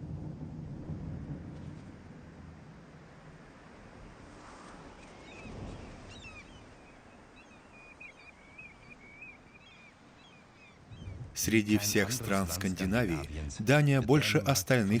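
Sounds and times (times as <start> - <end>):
songbird chirping and warbling: 5.0 - 13.1
wind rushing: 10.8 - 11.9.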